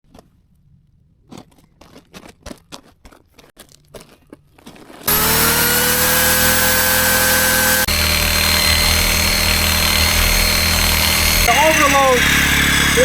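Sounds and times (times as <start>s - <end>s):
electric saw running: 5.0s - 13.0s.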